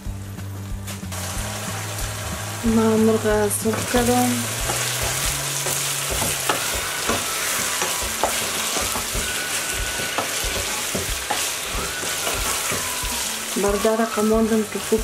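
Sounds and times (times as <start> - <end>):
chicken and peppers sizzling: 0.0 - 15.0
wooden spatula scraping pan: 3.6 - 13.8.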